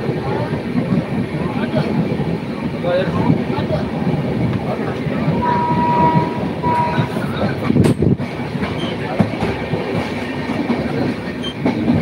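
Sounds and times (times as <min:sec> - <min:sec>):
train wheels rumbling and rattling: 0:00.0 - 0:12.0
brief high steady tone: 0:05.4 - 0:07.2.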